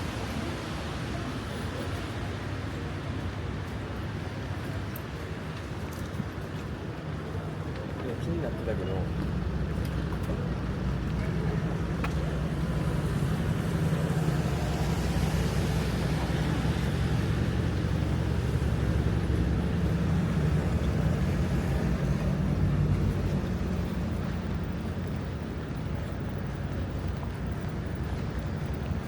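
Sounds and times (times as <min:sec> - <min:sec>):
steady traffic hiss: 0:00.0 - 0:29.0
vehicle engine rumble: 0:00.0 - 0:29.0.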